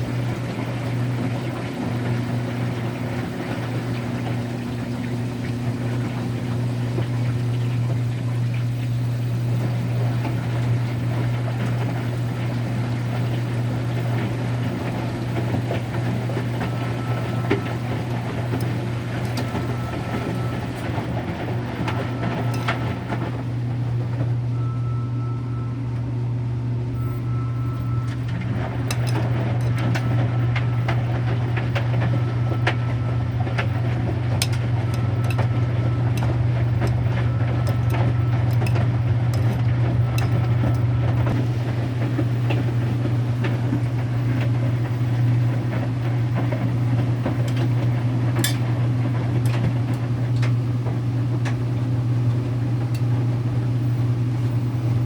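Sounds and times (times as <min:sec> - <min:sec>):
washing machine motor hum: 0:00.0 - 0:55.0
short high beep tone: 0:27.0 - 0:28.1.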